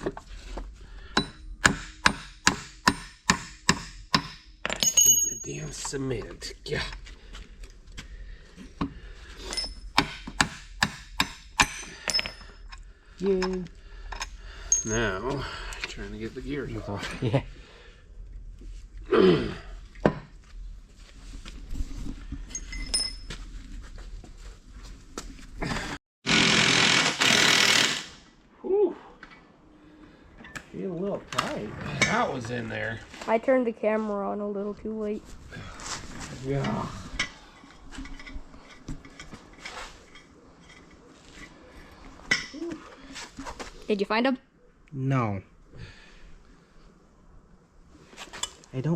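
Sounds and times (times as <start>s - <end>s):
metal tools clinking: 4.6s - 6.0s, 9.4s - 10.0s, 11.6s - 15.2s, 22.4s - 23.3s.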